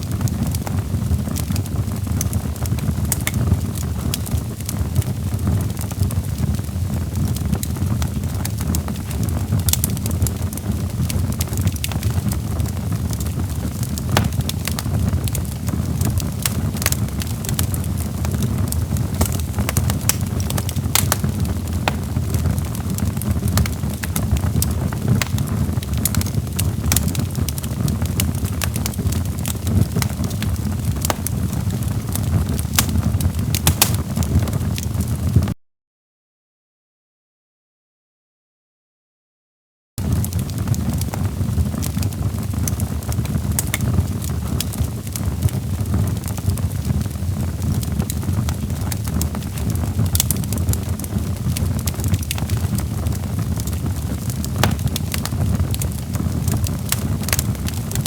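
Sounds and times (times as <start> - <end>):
log fire crackling: 0.0 - 35.4, 40.0 - 58.0.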